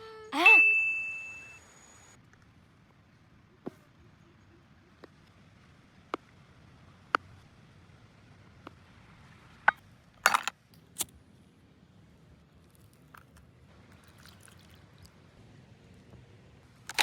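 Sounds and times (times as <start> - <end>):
louder clinks: 9.7 - 10.5.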